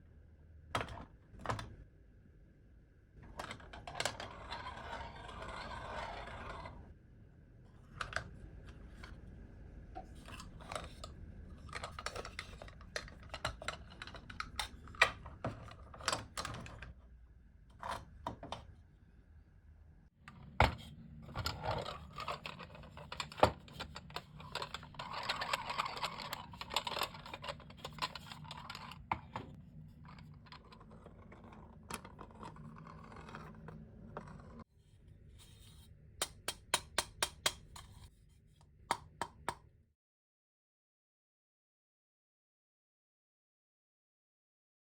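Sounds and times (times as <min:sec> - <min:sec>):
small parts clicking and tapping: 0:21.3 - 0:29.6, 0:36.2 - 0:38.1.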